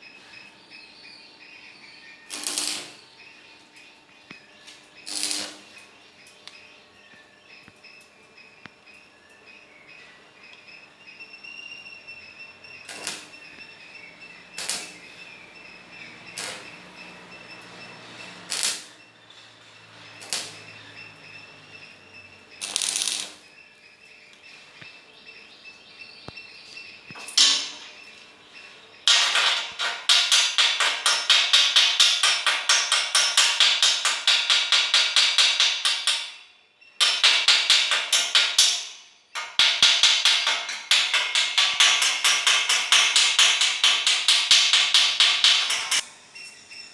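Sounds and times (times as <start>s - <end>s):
metal knocks on steel grill: 29.1s - 36.3s, 37.0s - 46.0s.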